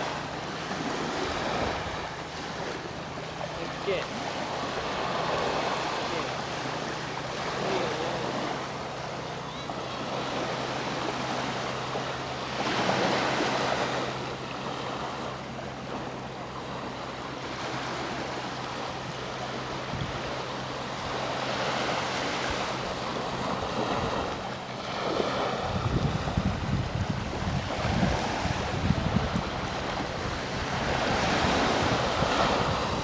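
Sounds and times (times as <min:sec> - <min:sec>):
sea waves washing ashore: 0:00.0 - 0:33.0
wind buffeting microphone: 0:01.1 - 0:02.4, 0:19.8 - 0:20.5, 0:25.2 - 0:33.0.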